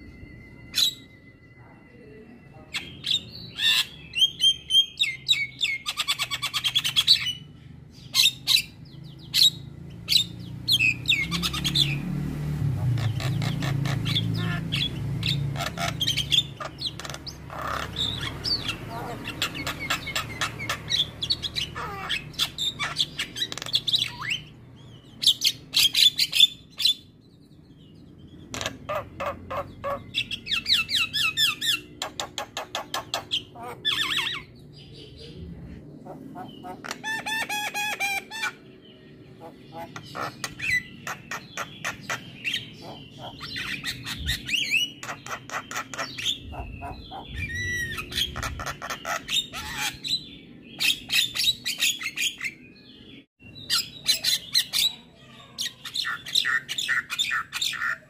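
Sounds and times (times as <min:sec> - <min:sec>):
myna bird chattering: 0:12.7 - 0:52.7, 0:53.5 - 0:58.0
bird squawks: 0:12.8 - 0:24.5, 0:28.5 - 0:34.6, 0:36.0 - 0:38.7, 0:39.3 - 0:52.6.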